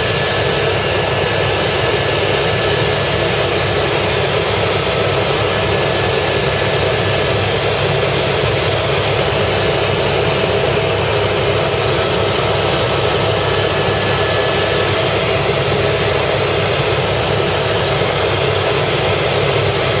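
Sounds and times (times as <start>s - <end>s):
helicopter engine and rotor rumble: 0.0s - 20.0s.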